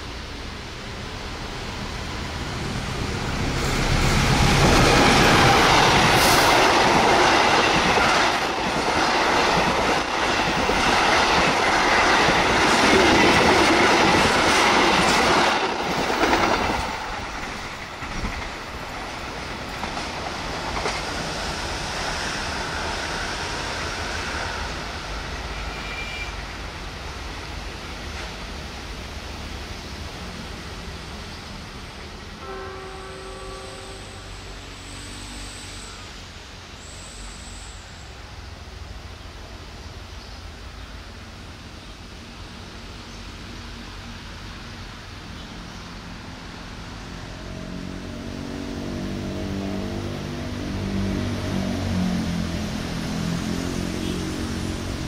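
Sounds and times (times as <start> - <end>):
train wheels rumbling and clacking: 0.0 - 32.5.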